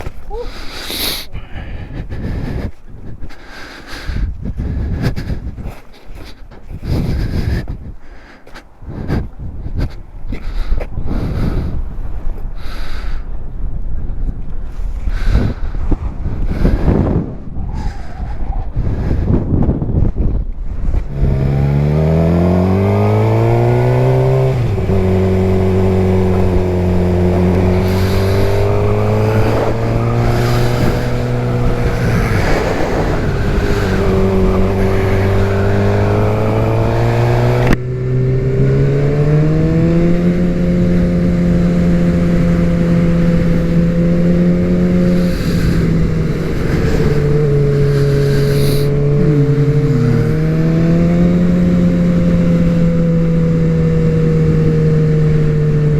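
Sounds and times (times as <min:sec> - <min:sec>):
wind noise: 0:00.0 - 0:55.9
motorcycle engine accelerating: 0:18.5 - 0:55.9.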